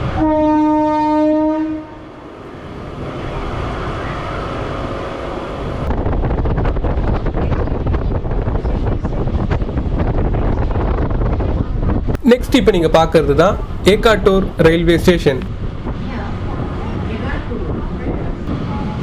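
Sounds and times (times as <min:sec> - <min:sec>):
train horn: 0:00.0 - 0:02.2
train rumble and wheel clatter: 0:00.0 - 0:19.0.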